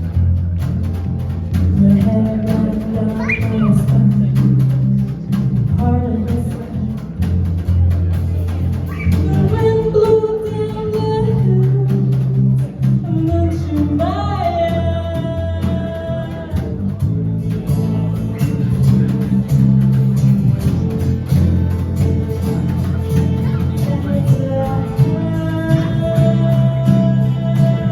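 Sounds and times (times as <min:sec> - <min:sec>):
person singing: 0:01.8 - 0:04.8, 0:23.4 - 0:27.9
rock band playing: 0:16.6 - 0:27.9.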